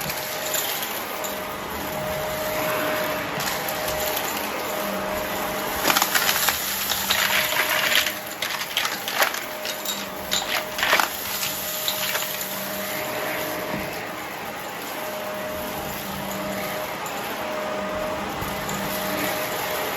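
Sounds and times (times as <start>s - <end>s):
vacuum cleaner running: 0.0s - 19.9s
debris clicking in vacuum: 3.4s - 12.7s.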